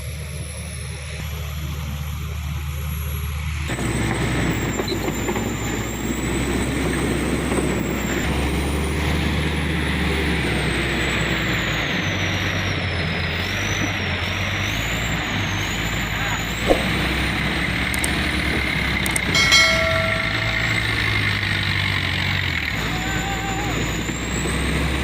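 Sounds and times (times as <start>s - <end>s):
truck diesel engine revving: 22.1s - 25.0s.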